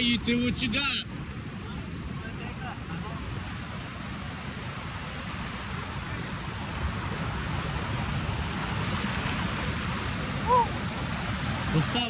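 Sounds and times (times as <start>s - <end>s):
ocean surf: 0.0s - 12.0s.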